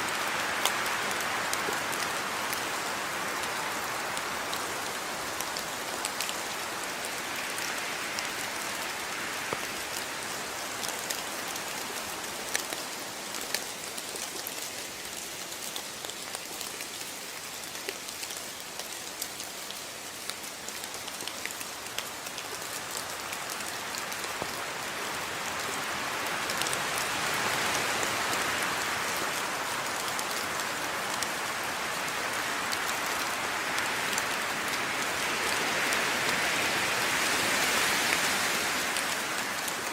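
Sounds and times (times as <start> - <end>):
rain drops pattering on a surface: 0.0 - 39.9.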